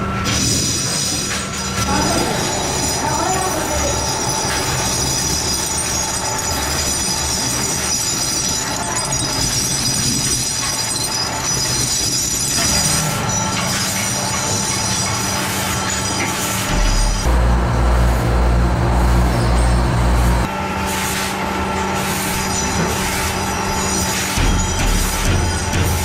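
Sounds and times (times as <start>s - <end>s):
machinery grinding with high whine: 0.0s - 26.0s
deep pulsing motor hum: 16.7s - 20.5s.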